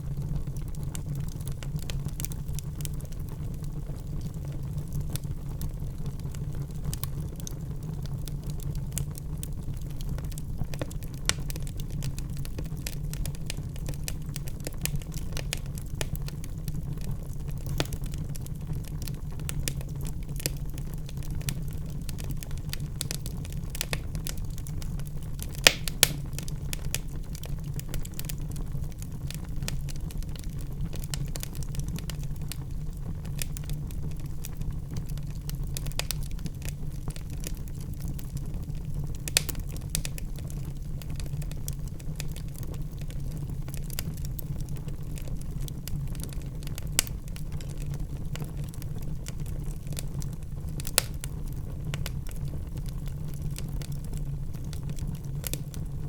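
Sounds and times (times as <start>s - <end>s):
fire crackling: 0.0s - 56.0s
low rumble of flames: 0.0s - 56.0s
sharp fire pops: 17.6s - 18.2s, 25.4s - 28.4s, 39.2s - 40.2s, 50.8s - 51.3s.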